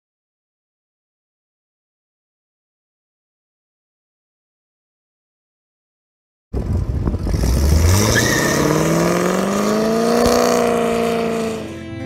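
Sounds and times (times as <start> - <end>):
car engine accelerating hard: 6.6 - 12.0.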